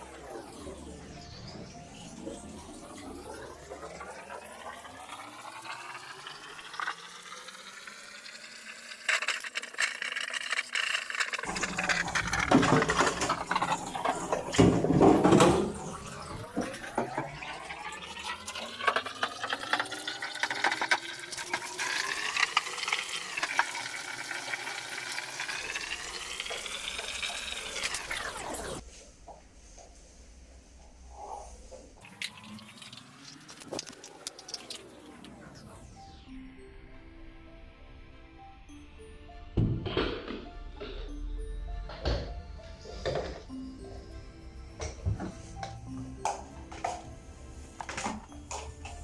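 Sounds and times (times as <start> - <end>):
tap water filling a container: 3.3 - 28.8, 32.0 - 35.0.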